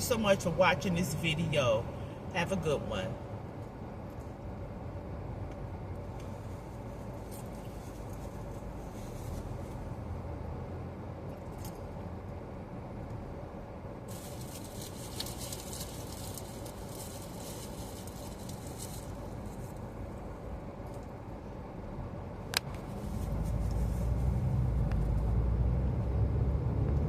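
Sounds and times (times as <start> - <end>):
air conditioning blowing: 0.0 - 27.0
car engine and tyre rumble: 0.0 - 27.0.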